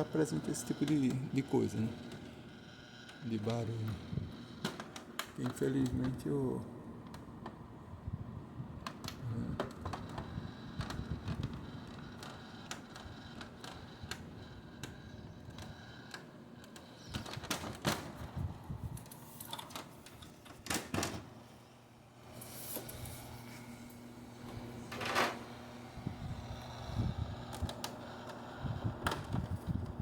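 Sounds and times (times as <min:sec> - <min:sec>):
rasping sounds: 0:22.2 - 0:30.0.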